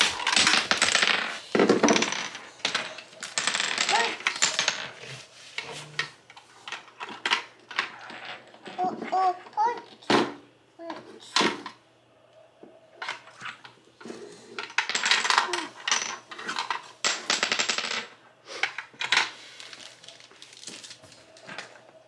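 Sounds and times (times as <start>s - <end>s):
toy pieces rattling: 0.0s - 5.0s.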